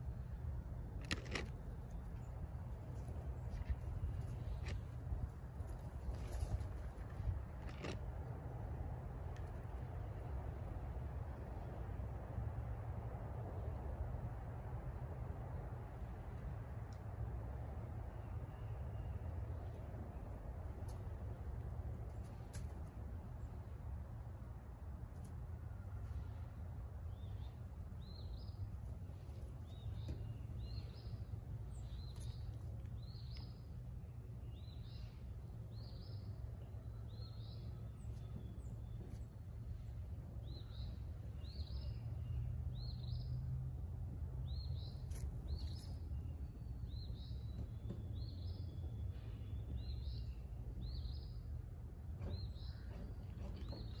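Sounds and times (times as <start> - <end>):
low outdoor rumble: 0.0 - 54.0
bird chirping: 27.1 - 43.4.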